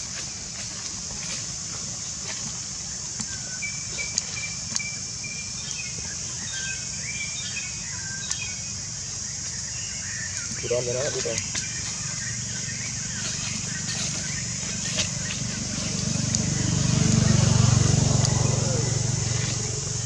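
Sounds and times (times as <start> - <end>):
high-pitched hiss: 0.0 - 20.0
faint clicks: 8.2 - 8.5, 11.2 - 11.7.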